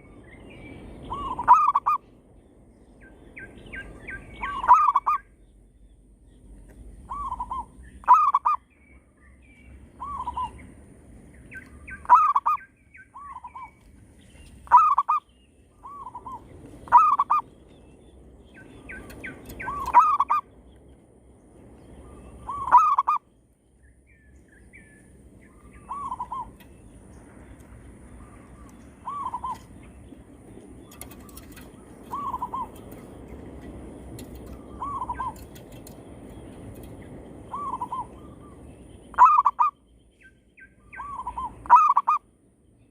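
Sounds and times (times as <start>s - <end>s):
doves cooing: 15.8s - 17.4s, 18.9s - 20.4s, 30.8s - 33.0s, 34.2s - 36.0s.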